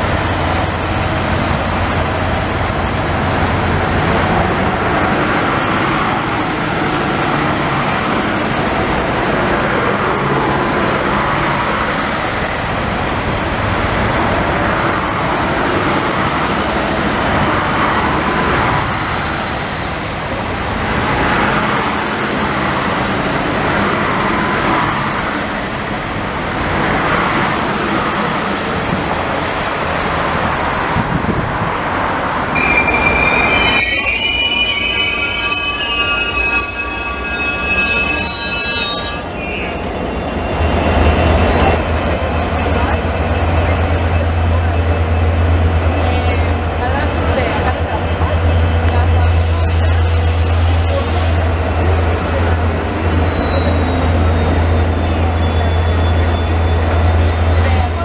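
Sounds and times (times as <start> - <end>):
train wheels on rails: 0.0 - 58.0
faint high squeals: 32.6 - 40.8.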